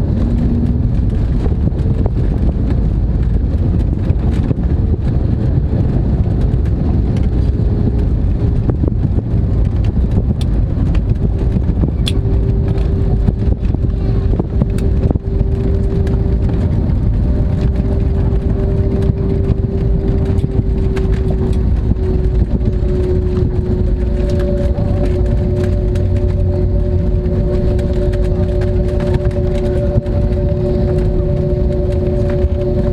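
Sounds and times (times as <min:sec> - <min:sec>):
aircraft cabin engine rumble: 0:00.0 - 0:32.9.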